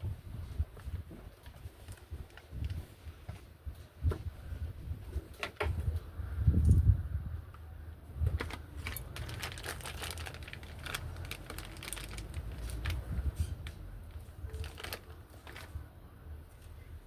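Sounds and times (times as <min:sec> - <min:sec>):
light clicks and crinkling: 0:00.8 - 0:03.4, 0:08.3 - 0:15.8.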